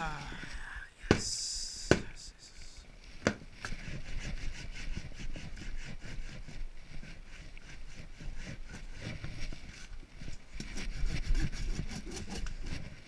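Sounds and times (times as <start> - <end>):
chisel scraping wood: 3.2 - 13.0.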